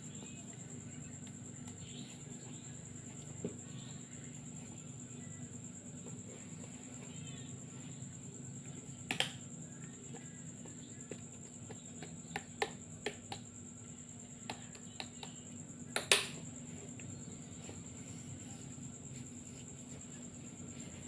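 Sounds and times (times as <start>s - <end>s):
hands clicking and snapping on body: 9.1s - 9.4s.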